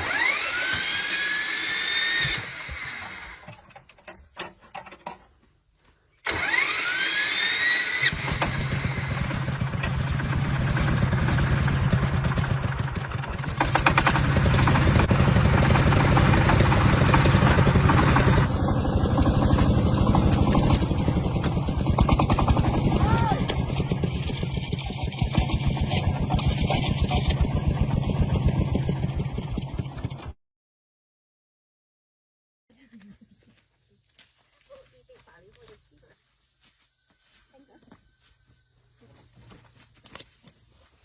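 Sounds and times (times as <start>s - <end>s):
tractor engine cranking: 0.0s - 5.4s, 6.2s - 30.4s
tractor engine running: 6.2s - 30.4s.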